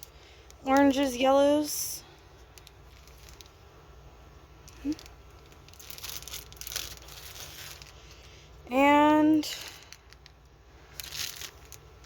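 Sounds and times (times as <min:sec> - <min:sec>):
plastic packaging crinkling: 0:02.3 - 0:03.7, 0:04.6 - 0:08.5, 0:09.4 - 0:12.0.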